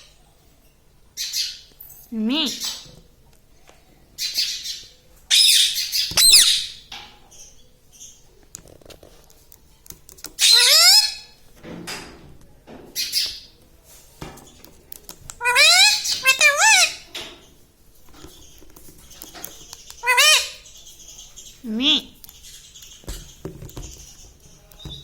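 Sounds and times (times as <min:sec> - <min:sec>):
parrot squawking: 0:05.3 - 0:06.8, 0:10.4 - 0:11.4, 0:15.4 - 0:17.1, 0:20.0 - 0:20.7.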